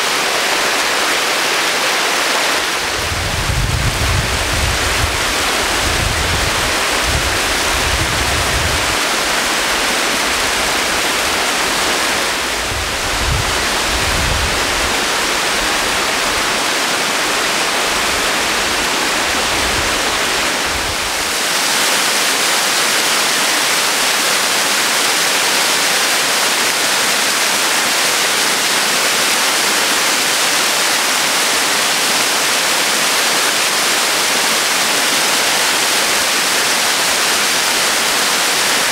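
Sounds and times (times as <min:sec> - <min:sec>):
waterfall rushing: 0:00.0 - 0:38.9
wind buffeting microphone: 0:02.6 - 0:16.0.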